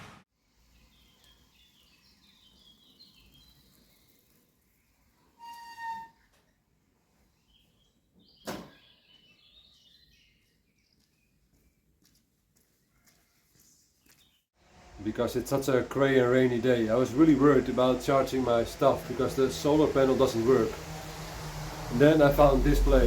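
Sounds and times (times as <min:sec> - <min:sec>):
small birds singing: 0:00.6 - 0:05.3, 0:07.1 - 0:12.1, 0:13.0 - 0:14.5.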